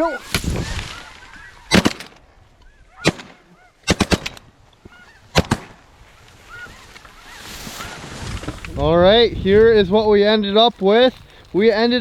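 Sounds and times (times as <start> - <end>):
shotgun shots: 1.7 - 2.2, 3.0 - 4.4, 5.4 - 5.8
geese honking: 2.6 - 3.9, 4.8 - 5.4, 6.0 - 8.2.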